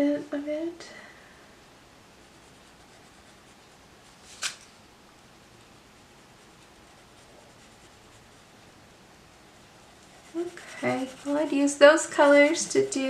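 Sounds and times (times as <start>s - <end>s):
pencil scratching on paper: 2.2s - 3.9s, 5.8s - 13.0s.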